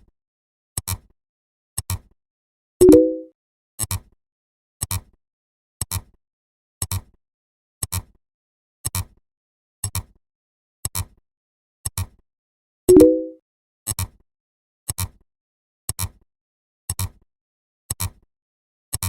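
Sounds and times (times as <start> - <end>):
short chime: 2.8 - 3.3, 12.9 - 13.4.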